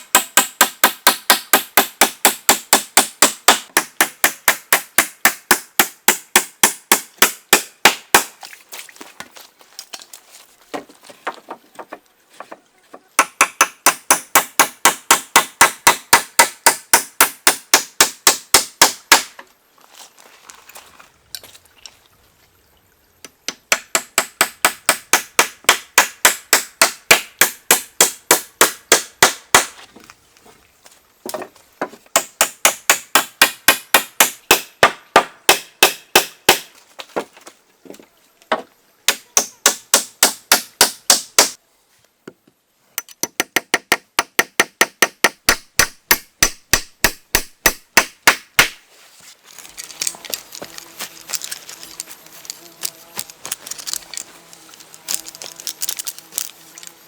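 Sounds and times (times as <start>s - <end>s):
hand tool striking wood: 0.0s - 8.4s, 13.2s - 19.4s, 23.5s - 29.8s, 31.3s - 37.3s, 38.5s - 41.6s, 43.0s - 48.8s.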